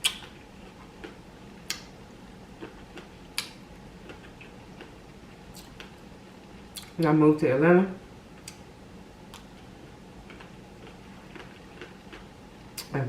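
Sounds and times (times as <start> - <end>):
mouth clicks and wet smacks chewing: 0.0 - 0.4, 2.6 - 6.0, 6.7 - 7.0, 9.3 - 9.5.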